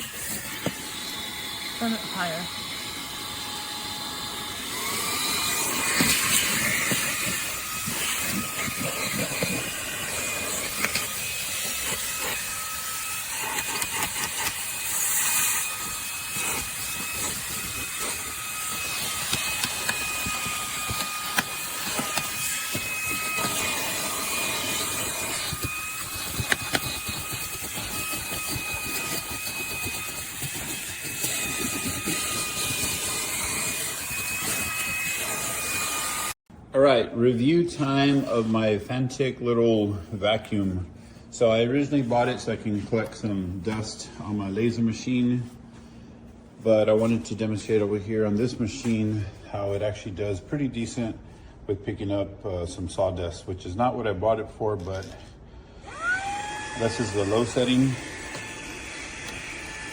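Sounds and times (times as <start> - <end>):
handheld vacuum running: 0.0 - 36.4, 55.8 - 59.9.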